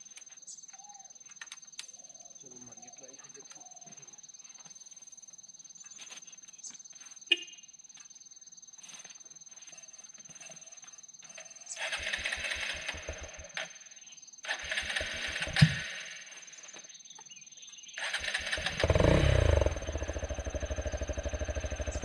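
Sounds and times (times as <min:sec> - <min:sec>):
motorcycle electric starter cranking: 0:11.8 - 0:13.6, 0:14.5 - 0:16.4, 0:18.0 - 0:22.0.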